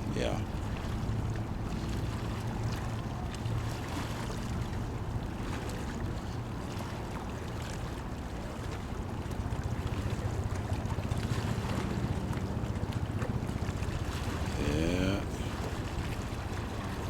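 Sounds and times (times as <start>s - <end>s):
low engine drone: 11.5s - 15.8s.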